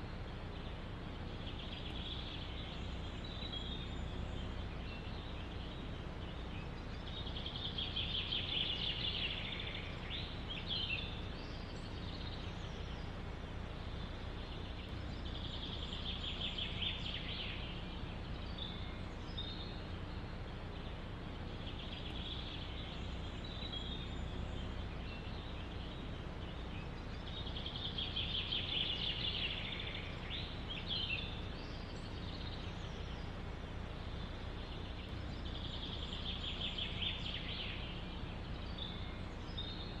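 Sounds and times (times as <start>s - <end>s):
songbird trilling: 0.0s - 40.0s
wind in forest: 0.0s - 40.0s.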